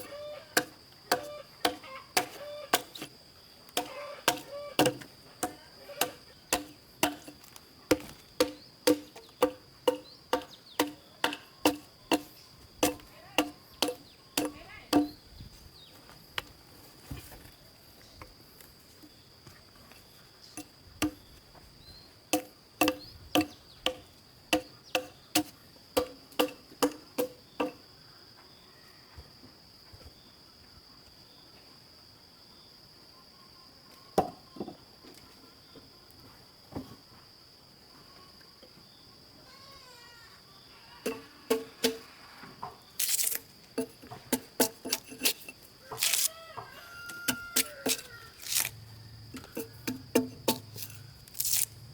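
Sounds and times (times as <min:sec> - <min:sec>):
high insect drone: 0:00.0 - 0:29.4, 0:35.5 - 0:51.9
hand tool striking with ringing knock: 0:07.9 - 0:15.2, 0:22.4 - 0:27.8.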